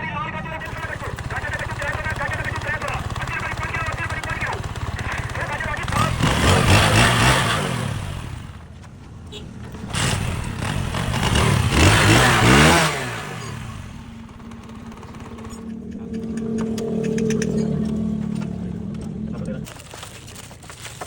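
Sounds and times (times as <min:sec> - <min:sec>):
motorcycle engine revving and idling: 0:00.0 - 0:20.8.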